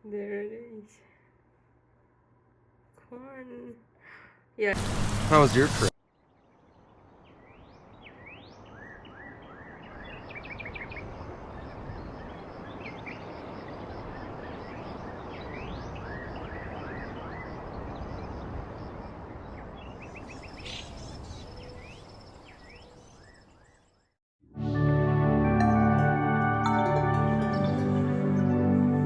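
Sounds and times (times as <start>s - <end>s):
steady outdoor rushing noise: 4.8s - 5.9s
flock of birds chirping: 7.2s - 23.8s.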